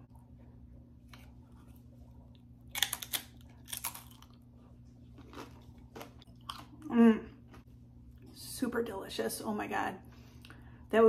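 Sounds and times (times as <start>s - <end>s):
person crunching a chip: 2.7s - 4.4s, 5.2s - 6.8s.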